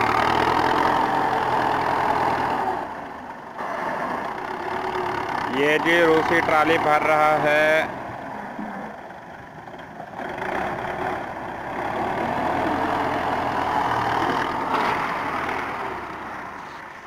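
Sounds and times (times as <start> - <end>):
tractor diesel engine: 0.0 - 17.0.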